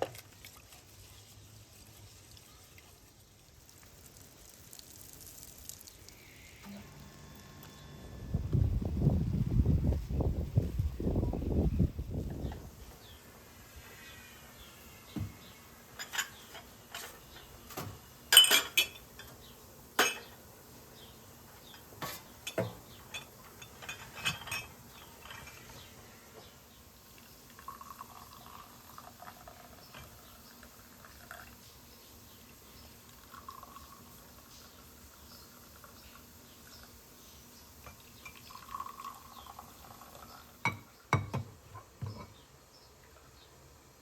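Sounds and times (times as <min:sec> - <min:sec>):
cookware and utensils clinking: 0:16.0 - 0:19.4, 0:20.0 - 0:20.4, 0:21.7 - 0:25.8, 0:37.8 - 0:39.6, 0:40.6 - 0:42.4.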